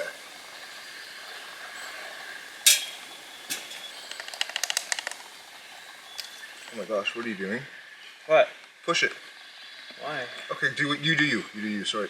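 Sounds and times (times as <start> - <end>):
rapid small clicks: 4.1 - 5.3.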